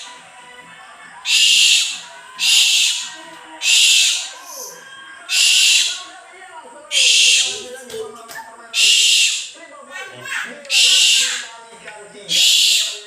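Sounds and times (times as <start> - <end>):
owl screeching: 1.2 - 6.1, 6.9 - 7.6, 8.8 - 11.6, 12.3 - 13.0.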